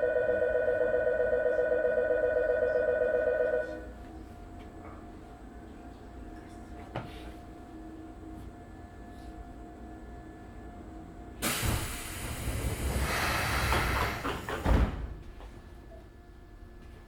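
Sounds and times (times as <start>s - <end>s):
rush of air from doors: 11.4s - 15.2s
doors closing thump: 13.2s - 15.4s.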